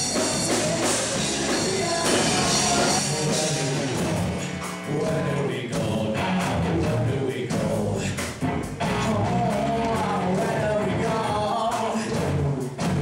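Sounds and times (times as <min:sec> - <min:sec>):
live rock band playing: 0:00.0 - 0:13.0
person singing: 0:00.0 - 0:13.0.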